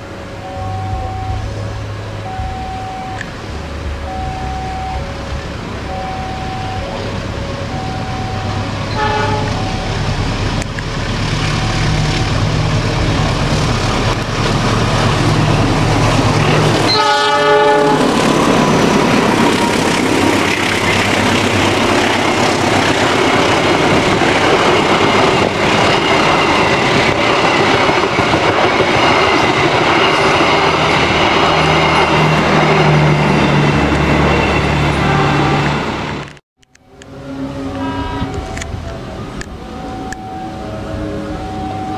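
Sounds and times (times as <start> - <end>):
train engine and wheels clattering: 0.0 - 41.9
locomotive horn: 4.0 - 10.6, 11.2 - 23.6, 30.1 - 36.0, 37.0 - 41.9.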